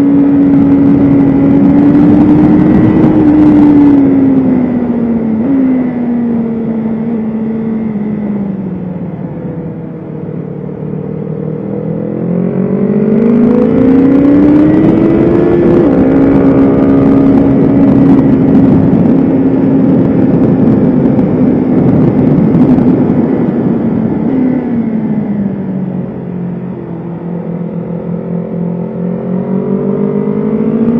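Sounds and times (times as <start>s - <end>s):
motorcycle engine accelerating: 0.0s - 30.9s
wind rush: 0.0s - 30.9s.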